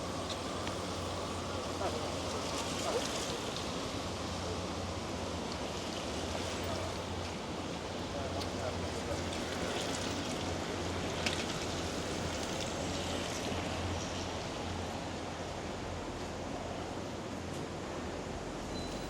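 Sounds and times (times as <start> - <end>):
rain falling on street: 0.0 - 14.0.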